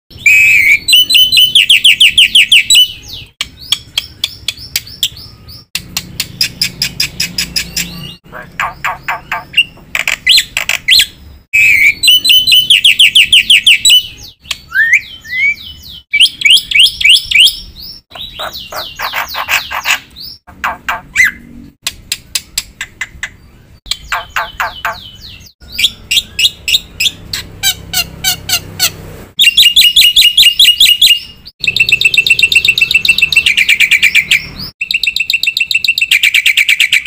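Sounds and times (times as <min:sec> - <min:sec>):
bird singing chirps and whistles: 0:00.1 - 0:20.4, 0:23.2 - 0:27.5, 0:29.4 - 0:37.0.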